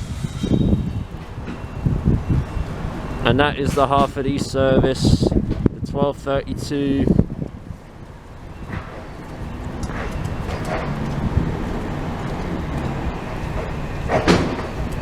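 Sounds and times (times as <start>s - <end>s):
short sharp sound: 0.0s - 2.6s
electric train rumbling: 0.0s - 5.8s, 6.4s - 15.0s.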